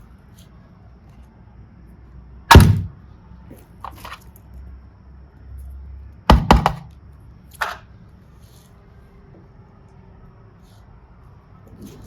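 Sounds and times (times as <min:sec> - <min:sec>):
sharp knocks of hard objects: 0:02.5 - 0:03.0, 0:06.3 - 0:06.9.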